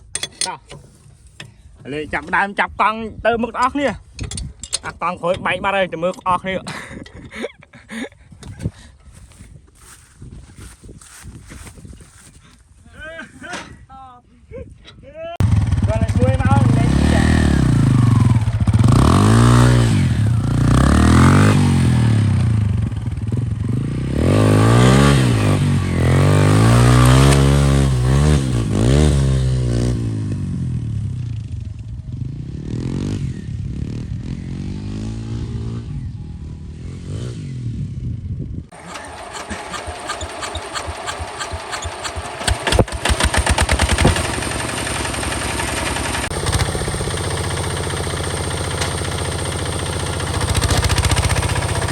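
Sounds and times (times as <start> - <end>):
engine rattle: 15.4 - 23.4, 38.7 - 51.9
tractor diesel engine revving: 15.4 - 30.0, 38.7 - 51.9.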